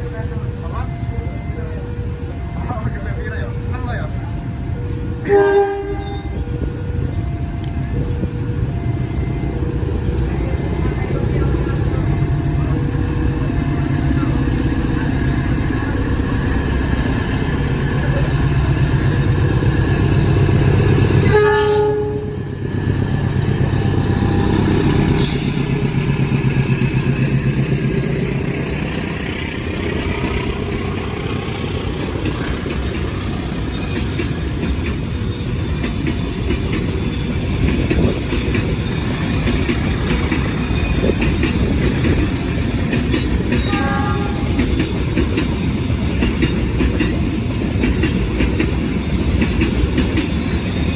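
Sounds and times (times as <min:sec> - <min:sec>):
train engine drone: 0:00.0 - 0:50.9
train horn blast: 0:05.2 - 0:06.7, 0:21.1 - 0:22.8, 0:43.6 - 0:44.7
wheels clattering over rail joints: 0:31.7 - 0:50.9.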